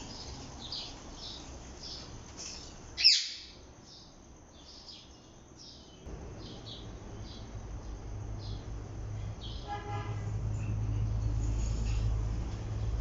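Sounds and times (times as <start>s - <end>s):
parakeet chirping: 3.0s - 3.6s
low steady hum: 3.6s - 13.0s.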